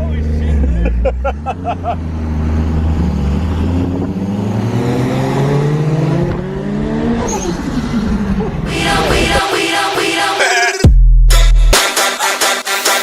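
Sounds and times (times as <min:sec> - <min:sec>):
car engine accelerating: 0:00.0 - 0:10.1.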